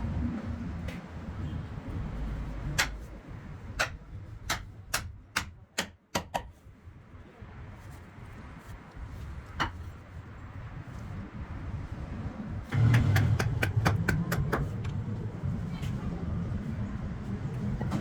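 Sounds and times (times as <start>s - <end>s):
low steady rumble: 0.0s - 5.4s, 6.7s - 18.0s
hand tool knocking on wood: 12.7s - 14.7s.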